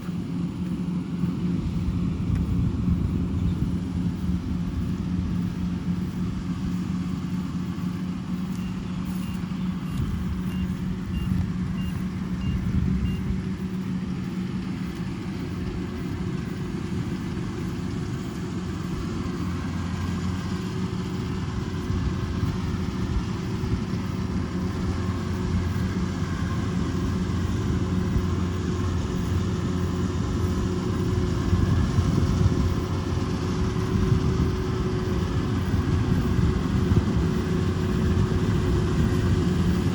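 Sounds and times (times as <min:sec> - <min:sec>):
combine harvester running: 0:00.0 - 0:39.9
short high beeps: 0:08.5 - 0:13.3.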